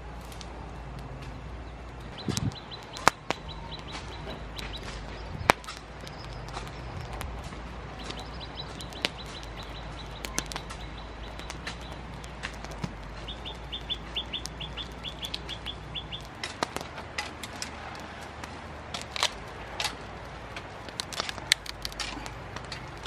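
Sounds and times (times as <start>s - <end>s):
bird chirping: 1.3s - 18.2s.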